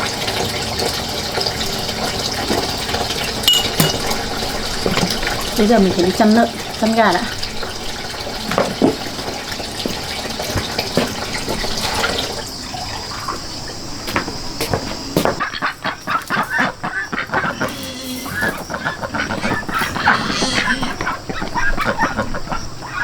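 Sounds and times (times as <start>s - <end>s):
running water rushing: 0.0s - 16.5s
chickens clucking: 0.0s - 23.0s.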